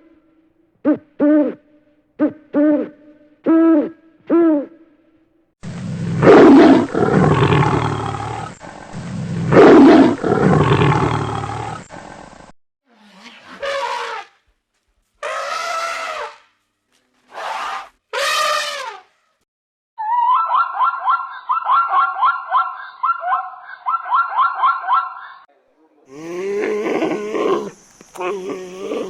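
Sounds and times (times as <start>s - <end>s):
loud rough animal roar: 5.9s - 8.6s, 9.3s - 12.1s, 26.1s - 29.0s
animal hoots: 6.1s - 8.6s, 9.3s - 12.2s, 26.1s - 29.0s.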